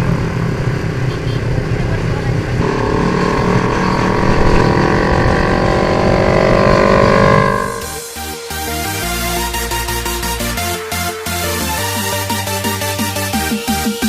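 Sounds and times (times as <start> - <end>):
motorcycle engine accelerating: 0.0 - 10.5.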